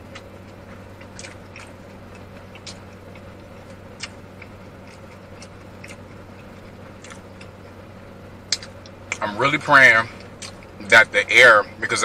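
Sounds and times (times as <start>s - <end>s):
car air conditioning hum: 0.0s - 12.0s
mouth chewing with wet smacks: 0.1s - 7.6s, 8.5s - 9.3s, 10.2s - 10.7s.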